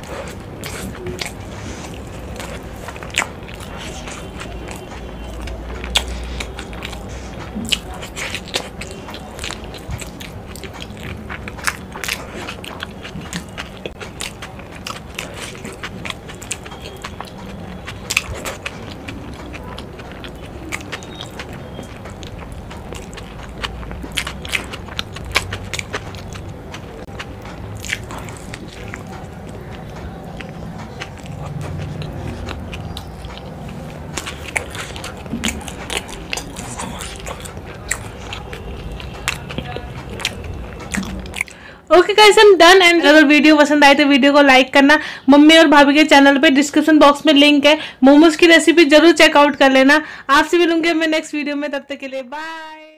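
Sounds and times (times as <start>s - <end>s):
person chewing food: 0.0s - 41.9s
wet mouth smacks and clicks: 39.3s - 41.6s.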